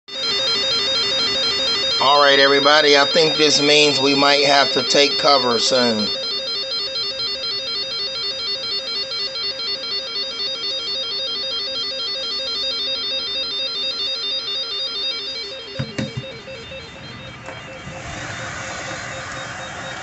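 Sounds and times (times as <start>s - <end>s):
warbling electronic alarm tone: 0.1s - 20.0s
short knocks: 15.8s - 16.4s.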